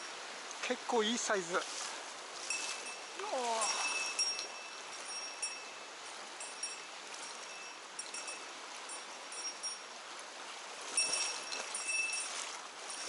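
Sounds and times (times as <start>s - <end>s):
mountain stream rushing: 0.0s - 13.0s
high ringing tinkles: 2.4s - 10.0s, 10.9s - 13.0s.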